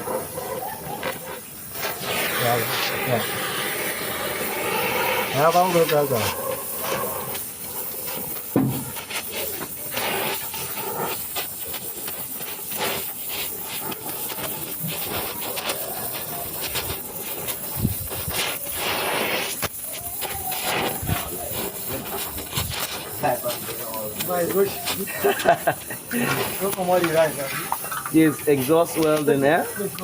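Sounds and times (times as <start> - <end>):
arc welding crackling hiss: 0.0 - 30.0.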